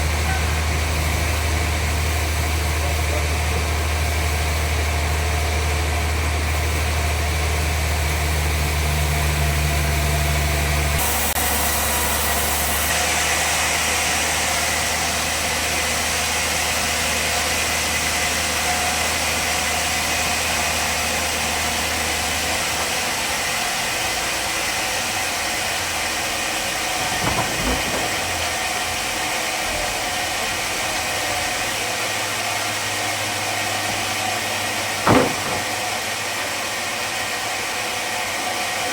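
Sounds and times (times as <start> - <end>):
sawmill machinery humming: 0.0 - 38.9
short knocks: 26.3 - 30.2, 33.4 - 36.8.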